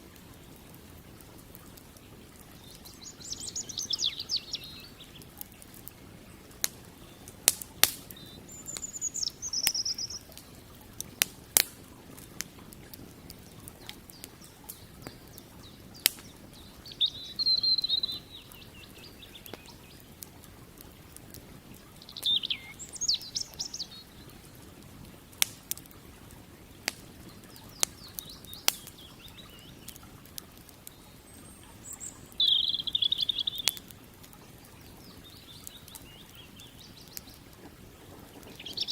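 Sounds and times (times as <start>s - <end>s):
campfire crackling and popping: 0.0s - 38.9s
faint background hiss: 0.0s - 38.9s
songbirds chirping: 0.0s - 38.9s.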